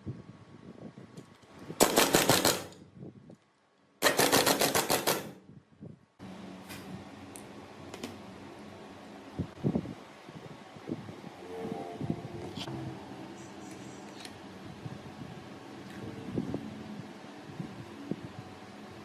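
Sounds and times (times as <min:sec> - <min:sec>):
power tool rattling: 0:01.8 - 0:02.8, 0:04.0 - 0:05.4
steady hum: 0:05.4 - 0:19.0.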